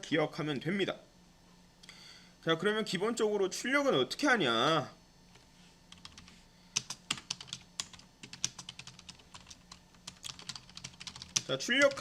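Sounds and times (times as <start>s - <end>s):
faint steady hum: 0.0s - 12.0s
keyboard typing: 5.9s - 12.0s.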